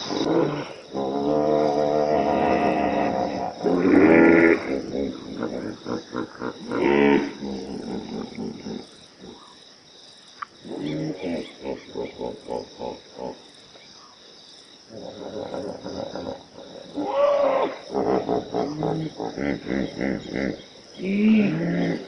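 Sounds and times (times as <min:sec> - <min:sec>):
lion grunting: 0:00.0 - 0:09.5, 0:14.9 - 0:22.0
insects trilling: 0:00.0 - 0:22.0.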